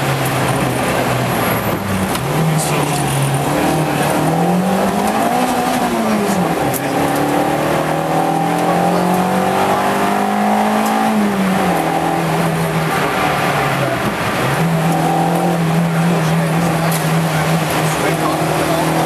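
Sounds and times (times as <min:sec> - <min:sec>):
car engine under load: 0:00.0 - 0:19.0.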